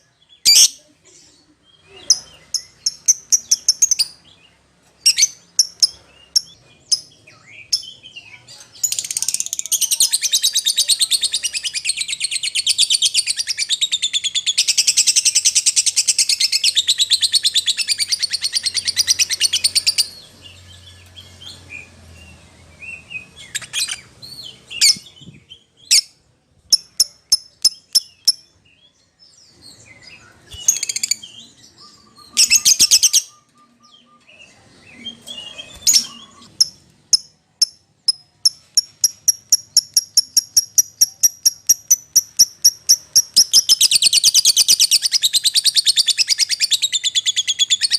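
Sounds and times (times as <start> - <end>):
shrill bird chirps: 1.8 - 47.9
lovebird chattering trill: 2.0 - 4.2, 26.7 - 28.5, 30.6 - 34.2, 35.3 - 47.9.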